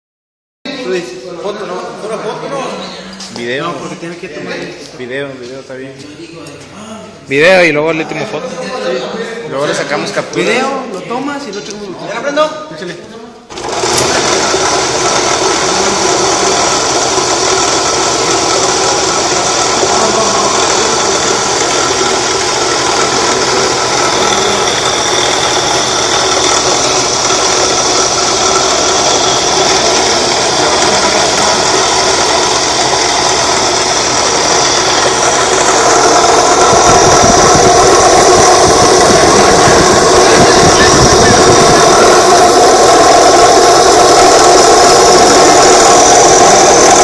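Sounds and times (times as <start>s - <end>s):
electric motor running: 13.5s - 47.0s.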